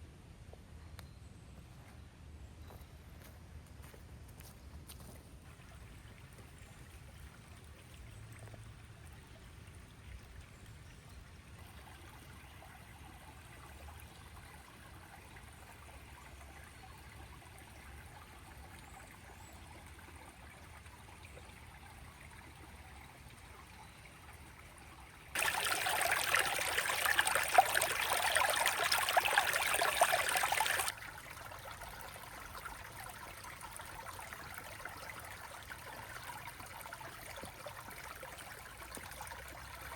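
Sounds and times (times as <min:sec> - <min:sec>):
river water flowing: 0:20.4 - 0:39.9
loud rush of water: 0:25.4 - 0:31.3.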